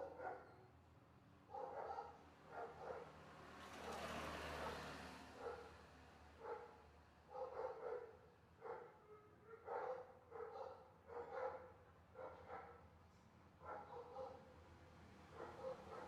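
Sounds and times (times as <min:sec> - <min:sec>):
dog barking faintly: 0:00.0 - 0:00.6, 0:01.5 - 0:03.1, 0:06.4 - 0:12.9, 0:13.6 - 0:14.5, 0:15.4 - 0:16.0.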